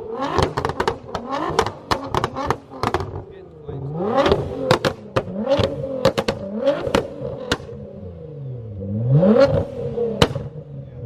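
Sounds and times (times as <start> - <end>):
car engine revving: 0.0 - 11.0
exhaust pops and bangs: 0.2 - 3.4, 4.2 - 7.8, 10.2 - 10.6.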